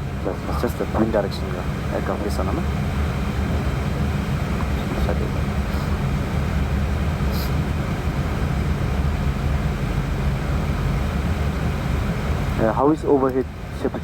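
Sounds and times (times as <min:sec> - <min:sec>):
rumble of airflow and engines: 0:00.0 - 0:14.0.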